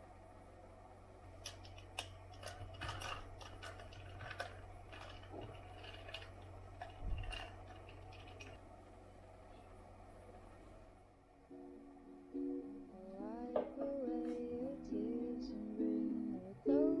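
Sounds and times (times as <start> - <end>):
steady low hum: 0.0 - 17.0
small objects clicking and tapping: 1.4 - 8.6.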